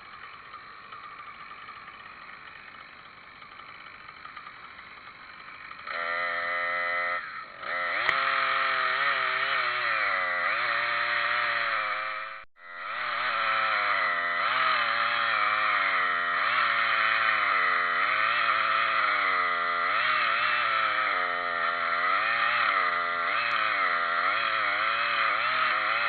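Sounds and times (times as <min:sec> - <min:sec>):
two-stroke chainsaw engine revving: 0:00.0 - 0:26.0.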